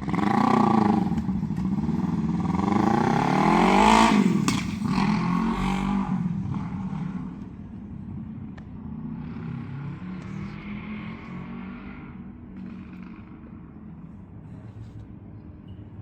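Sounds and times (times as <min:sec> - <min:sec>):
vehicle engine accelerating: 0:00.0 - 0:07.5.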